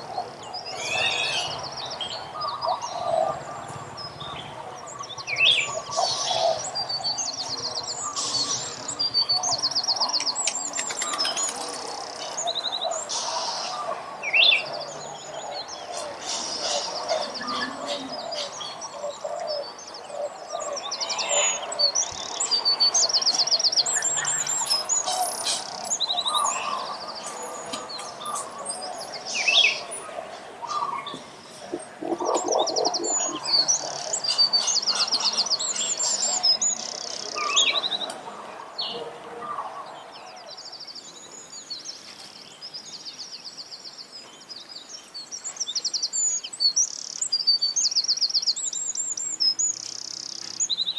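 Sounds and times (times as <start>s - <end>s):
lower chattering bird calls: 0.0s - 39.9s
songbirds chirping and trilling: 0.0s - 50.9s.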